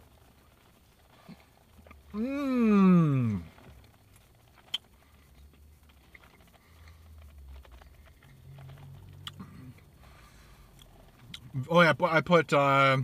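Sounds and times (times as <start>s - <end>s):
person chewing food: 3.2s - 11.5s.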